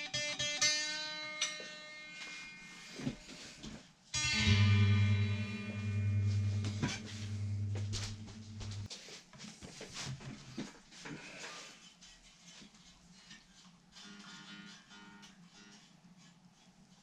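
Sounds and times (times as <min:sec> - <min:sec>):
clicks and knocks of guitar handling: 0:04.2 - 0:08.9
strummed guitar chord: 0:04.2 - 0:08.9.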